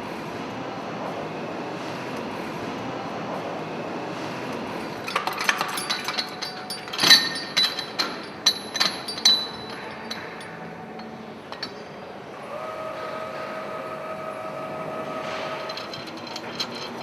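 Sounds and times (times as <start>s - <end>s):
steady hum: 0.0s - 17.0s
metal tools clinking: 4.9s - 12.4s, 15.2s - 17.0s.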